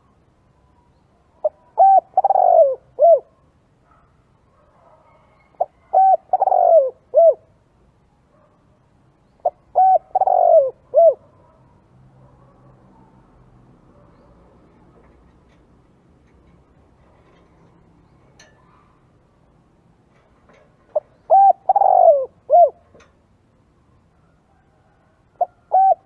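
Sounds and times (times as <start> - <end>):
dove cooing: 1.4 - 3.4, 4.9 - 7.5, 9.4 - 11.6, 20.8 - 23.1, 24.8 - 26.0.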